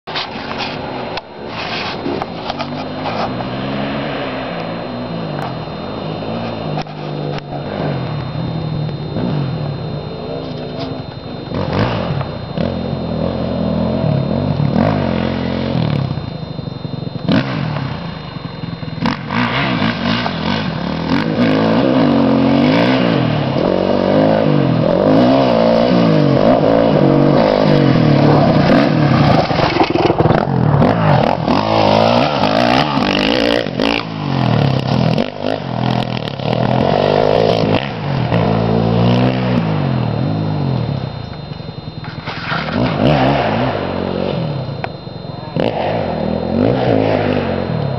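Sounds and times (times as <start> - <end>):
dirt bike engine revving: 0.1 - 47.9.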